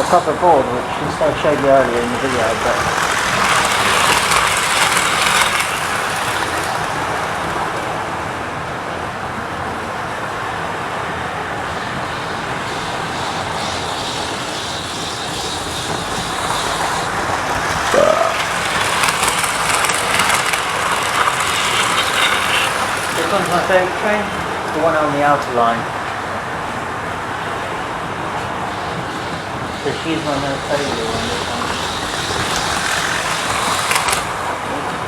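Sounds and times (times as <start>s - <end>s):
model trains rumbling on track: 0.0s - 35.0s
track clicks: 28.4s - 34.8s.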